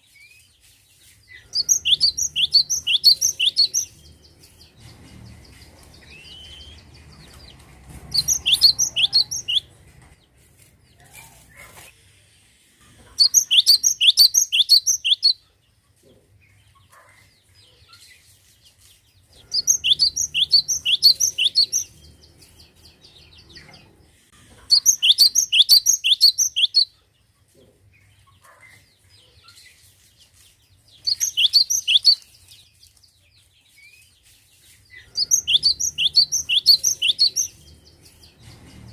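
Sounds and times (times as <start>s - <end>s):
bird singing whistled notes: 1.6s - 4.7s, 6.0s - 7.3s, 8.1s - 9.7s, 13.2s - 15.4s, 19.5s - 22.6s, 24.8s - 26.9s, 31.0s - 32.3s, 35.2s - 38.2s.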